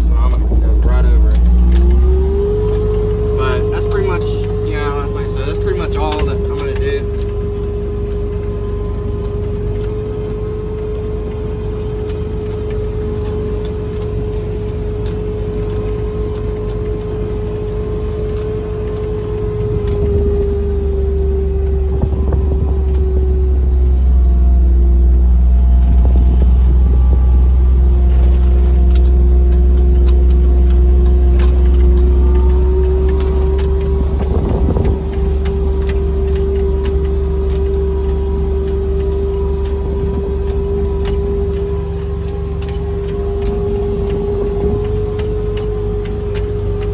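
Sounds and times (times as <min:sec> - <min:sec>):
low rumble: 0:00.0 - 0:11.3, 0:17.7 - 0:46.9
farm vehicle engine whining: 0:00.0 - 0:46.9.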